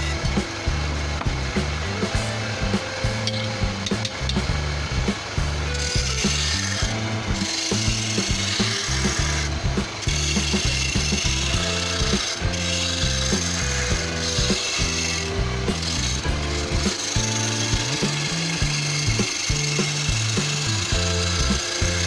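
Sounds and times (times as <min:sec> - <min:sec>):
background music: 0:00.0 - 0:22.0
lathe chisel scraping wood: 0:05.6 - 0:22.0.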